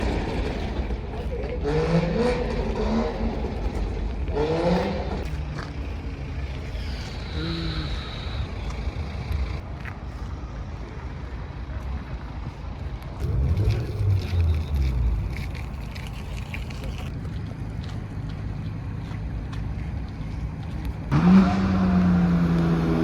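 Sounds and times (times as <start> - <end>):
people's voices: 0.0 - 17.1
car engines rumbling: 0.0 - 23.0.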